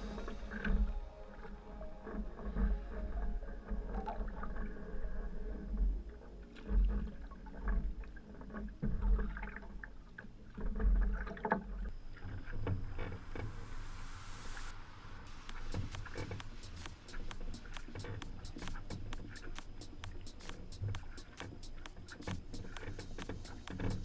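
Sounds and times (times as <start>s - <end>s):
paddle splashing in water: 15.2s - 24.0s.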